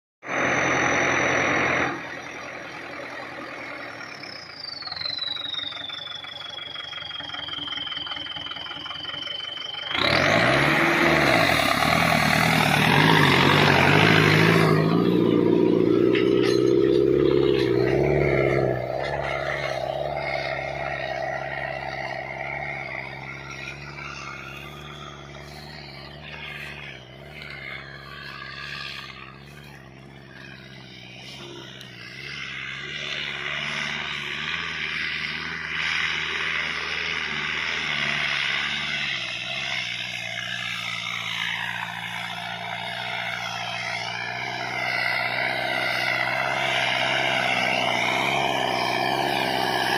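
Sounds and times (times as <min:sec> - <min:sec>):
tractor diesel engine running: 0:00.2 - 0:49.9
high whistle gliding downward: 0:00.3 - 0:37.2.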